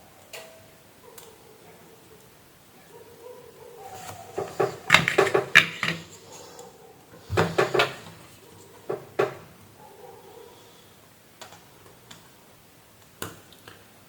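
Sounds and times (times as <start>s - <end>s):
tools clicking on workbench: 4.1s - 6.2s.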